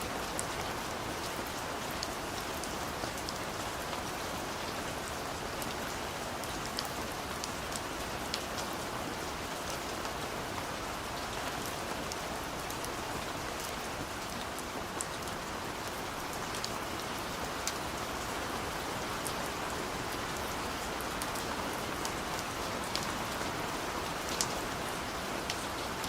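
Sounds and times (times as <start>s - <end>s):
steady rain hiss: 0.0s - 26.0s.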